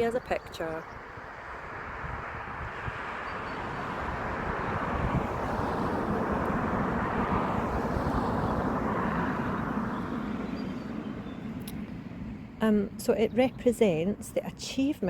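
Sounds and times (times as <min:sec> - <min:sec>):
vehicle passing by: 0:00.7 - 0:12.6.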